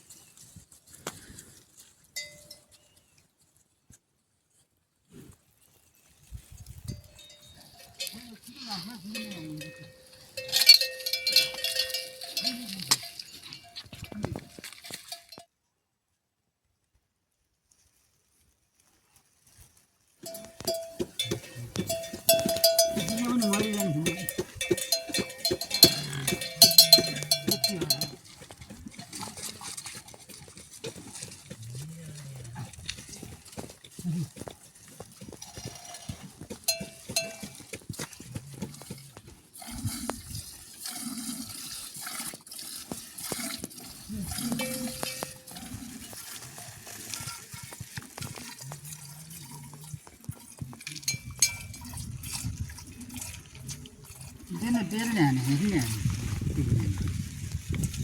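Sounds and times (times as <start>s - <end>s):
metal bell ringing and clanking: 6.9s - 15.4s, 20.2s - 28.2s, 36.7s - 37.6s, 44.4s - 45.7s, 51.0s - 51.9s.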